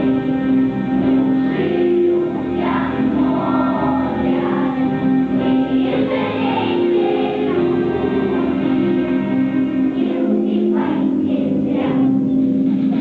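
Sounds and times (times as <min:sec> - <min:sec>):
choir singing: 0:00.0 - 0:13.0
instrumental accompaniment: 0:00.0 - 0:13.0.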